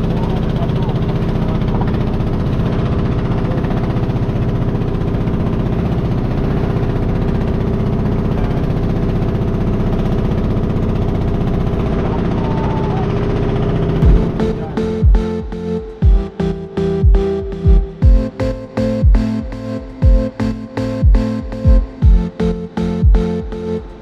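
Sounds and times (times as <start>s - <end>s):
engine droning: 0.0s - 24.0s
music with heavy beat: 14.0s - 24.0s.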